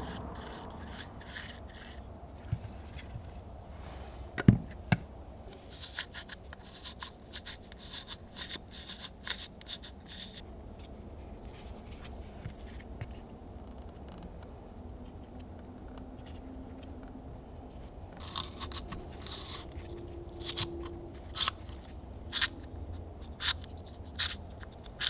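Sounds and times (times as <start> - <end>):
quick scraping strokes: 0.0 - 2.1.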